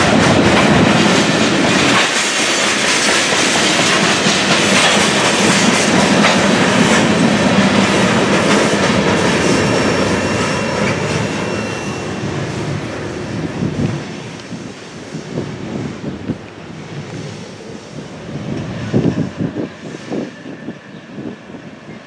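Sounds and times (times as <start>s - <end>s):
steel wheels clattering over rails: 0.0s - 12.2s
faint high wheel squeal: 9.7s - 12.4s.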